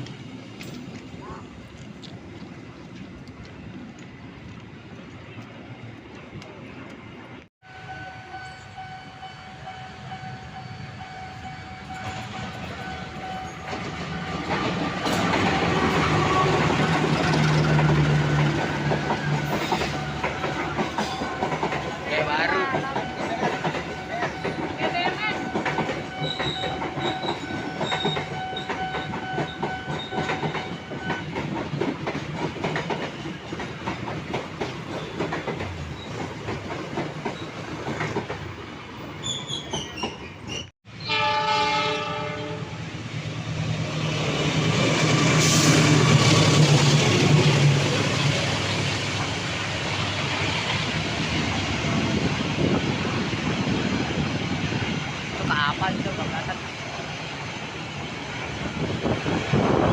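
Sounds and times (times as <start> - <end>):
train wheels rumbling on rails: 0.0 - 40.7, 42.0 - 59.9
train horn chord: 41.0 - 42.8.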